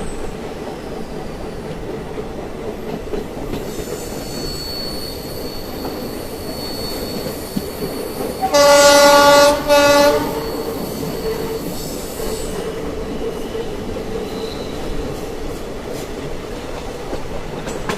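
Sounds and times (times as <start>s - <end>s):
train running on rails: 0.0s - 17.9s
train horn blasts: 8.4s - 10.8s.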